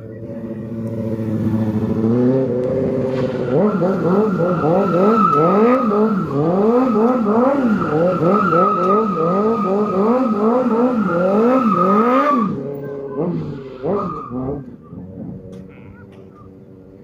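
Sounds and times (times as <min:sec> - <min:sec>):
car engine revving: 0:00.0 - 0:17.0
tire squeal: 0:02.9 - 0:16.6.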